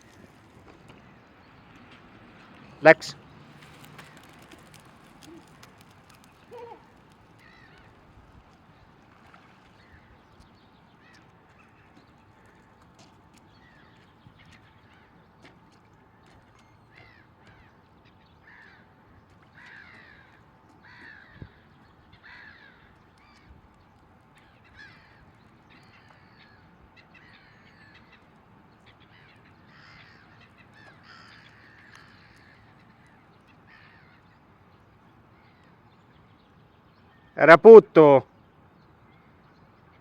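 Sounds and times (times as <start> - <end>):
faint bird calls: 3.9 - 23.6, 24.3 - 36.2.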